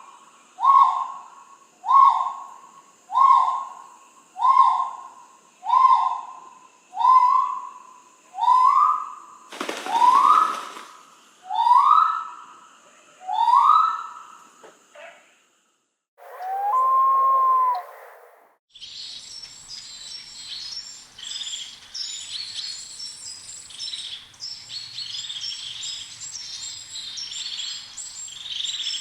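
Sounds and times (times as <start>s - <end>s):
bird whistled call: 16.2s - 19.0s.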